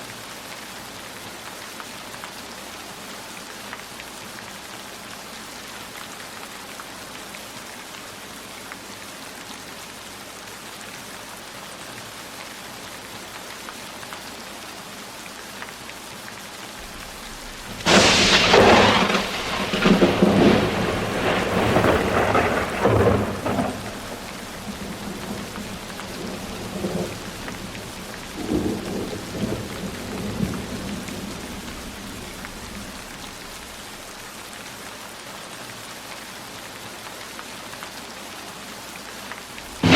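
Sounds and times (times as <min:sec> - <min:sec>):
steady rainfall: 0:00.0 - 0:39.9
thunderclap rumbling: 0:16.8 - 0:34.1, 0:39.7 - 0:39.9.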